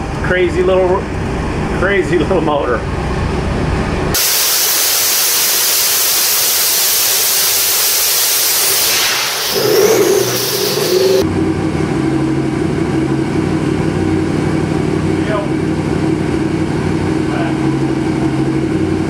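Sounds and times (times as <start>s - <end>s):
engine at full throttle: 3.0s - 19.0s
turbo whine: 8.4s - 11.2s.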